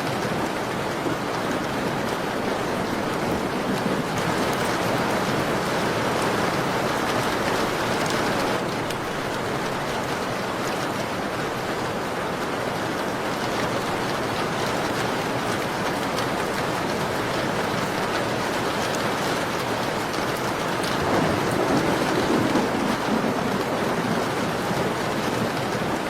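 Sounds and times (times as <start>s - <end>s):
rain on a window pane: 0.0s - 26.0s.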